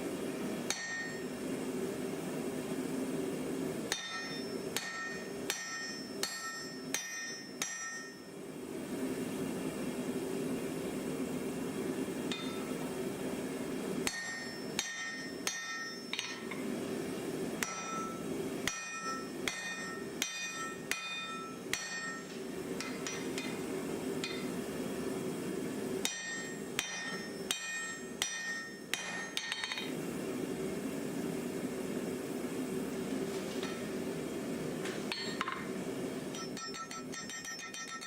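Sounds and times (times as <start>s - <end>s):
steady hum: 0.0s - 38.0s
hammer striking iron on anvil: 0.7s - 1.3s, 3.9s - 8.3s, 12.3s - 12.8s, 14.0s - 16.6s, 17.6s - 24.6s, 26.0s - 29.9s, 35.1s - 35.7s, 36.3s - 38.0s.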